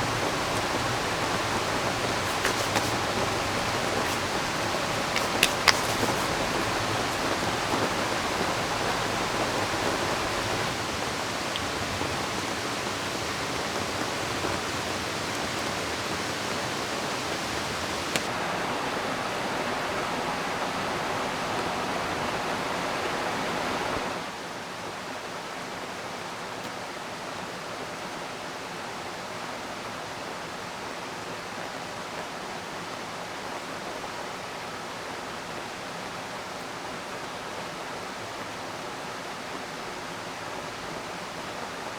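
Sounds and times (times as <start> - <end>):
river water rushing: 0.0 - 24.4.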